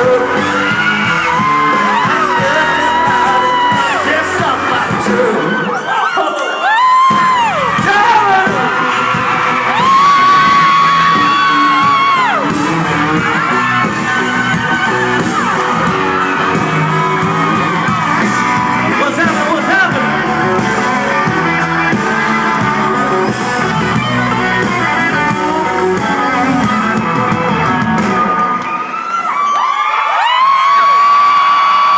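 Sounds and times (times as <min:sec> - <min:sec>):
person singing lead vocal: 0:00.0 - 0:09.1
country-rock band playing: 0:00.0 - 0:30.8
crowd yelling: 0:00.0 - 0:31.9.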